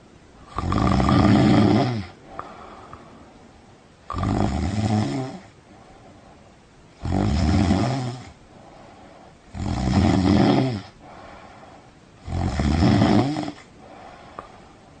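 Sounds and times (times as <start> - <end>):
person snoring: 0.4 - 2.9, 4.1 - 5.5, 7.0 - 8.8, 9.5 - 11.5, 12.2 - 14.5.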